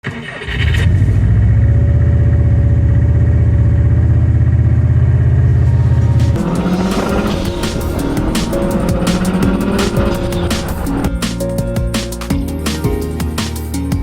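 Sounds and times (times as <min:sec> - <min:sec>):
diesel truck engine idling: 0:03.1 - 0:11.1.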